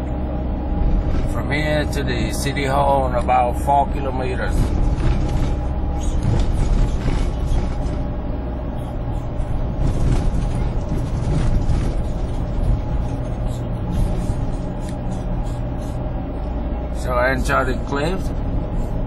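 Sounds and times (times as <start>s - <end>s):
vehicle engine hum: 0.0s - 19.0s
mechanical rattling and clicking: 4.4s - 16.5s.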